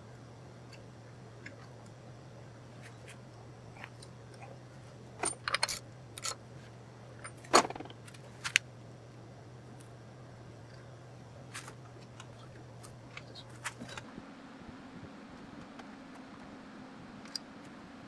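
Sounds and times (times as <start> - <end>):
steady low hum: 0.0 - 18.0
metal tools clinking: 5.2 - 6.4.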